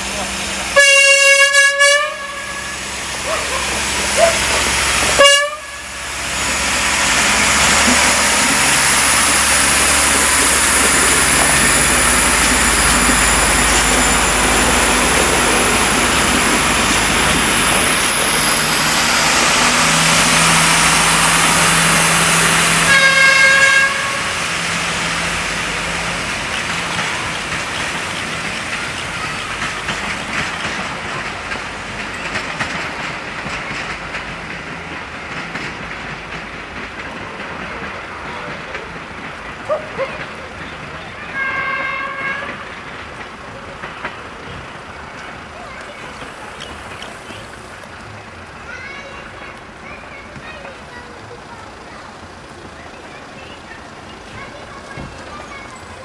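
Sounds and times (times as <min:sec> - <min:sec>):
train wheels rushing on rail: 0:00.0 - 0:56.0
train horn toot: 0:00.8 - 0:02.9, 0:05.2 - 0:06.0, 0:22.8 - 0:24.4, 0:41.3 - 0:42.7.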